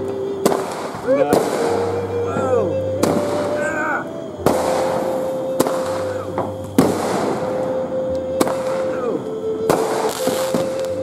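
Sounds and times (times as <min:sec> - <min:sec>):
fireworks bangs: 0:00.0 - 0:01.9, 0:03.0 - 0:03.8, 0:04.4 - 0:07.7, 0:08.3 - 0:11.0
hissing crackle: 0:00.0 - 0:11.0.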